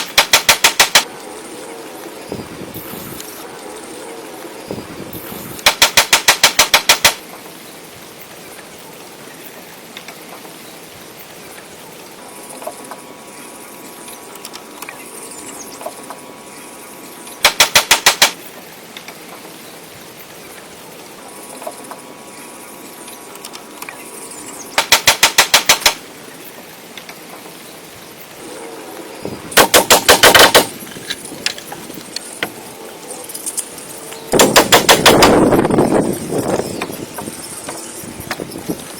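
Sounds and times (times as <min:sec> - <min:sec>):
bursts of rapid loud impacts: 0:00.0 - 0:01.1, 0:05.6 - 0:07.2, 0:17.4 - 0:18.4, 0:24.8 - 0:26.0, 0:29.5 - 0:30.8, 0:34.3 - 0:35.6.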